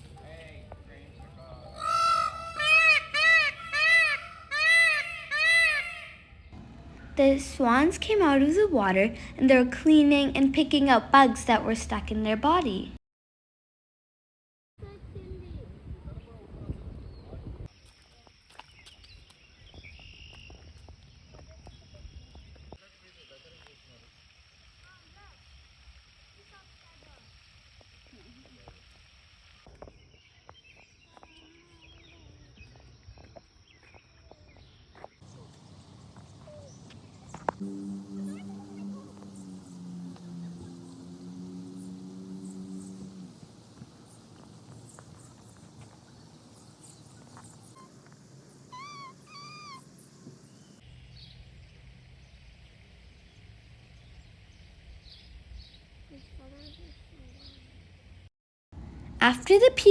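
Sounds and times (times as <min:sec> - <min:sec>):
peacock calling: 0:01.7 - 0:13.0, 0:35.2 - 0:50.8
small bird chirps: 0:35.3 - 0:50.8
low rumble: 0:35.8 - 0:46.7.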